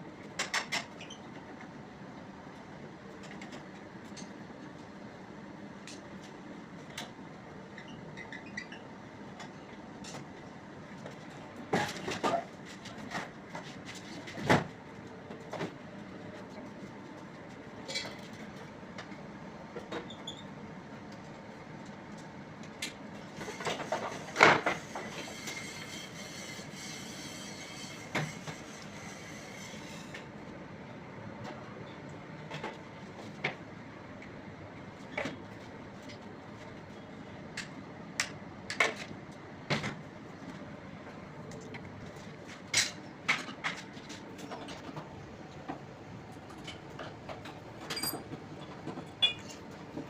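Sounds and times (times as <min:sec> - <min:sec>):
knocks and clatters of tools: 0:00.4 - 0:01.2, 0:17.8 - 0:19.1, 0:22.8 - 0:25.7, 0:32.5 - 0:33.6, 0:37.6 - 0:39.1, 0:42.1 - 0:45.8, 0:46.5 - 0:50.0.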